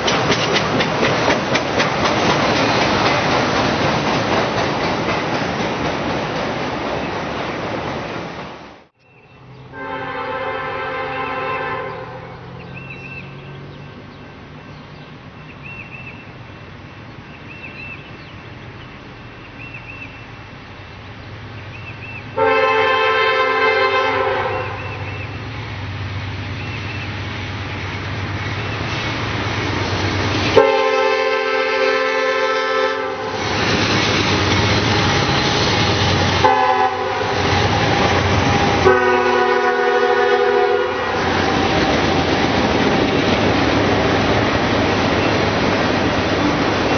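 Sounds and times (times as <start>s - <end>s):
train engine and rail noise: 0.0s - 46.9s
locomotive air horn blasts: 9.7s - 12.5s, 22.4s - 25.0s, 30.6s - 33.4s, 36.4s - 37.8s, 38.6s - 41.5s.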